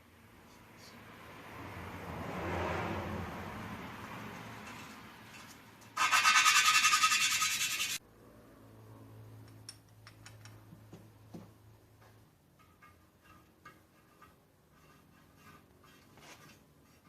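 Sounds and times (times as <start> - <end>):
tool rasping on metal: 6.0 - 8.0.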